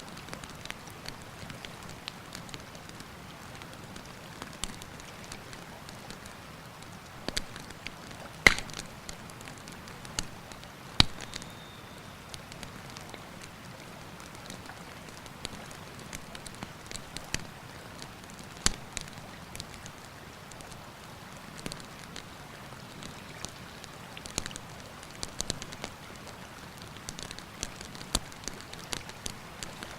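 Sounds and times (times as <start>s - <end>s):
campfire crackling: 0.1s - 29.9s
sharp pops from fire: 8.4s - 9.2s, 11.0s - 11.5s.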